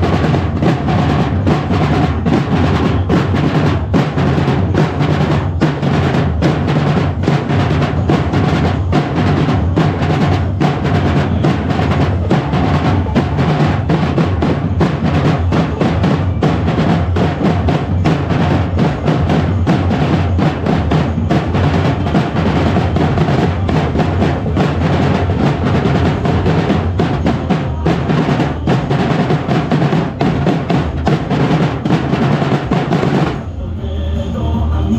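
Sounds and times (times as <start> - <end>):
drum-driven percussion music: 0.0 - 34.9.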